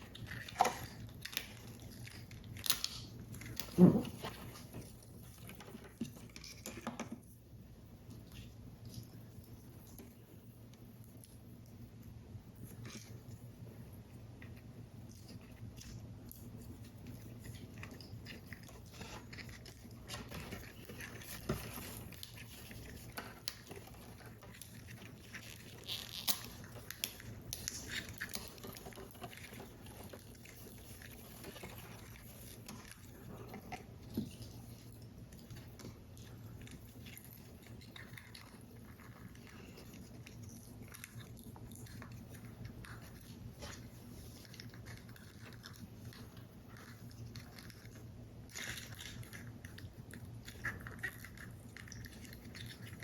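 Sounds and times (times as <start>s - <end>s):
faint steady hum: 0.0s - 53.0s
paper crinkling and rustling: 15.1s - 50.0s.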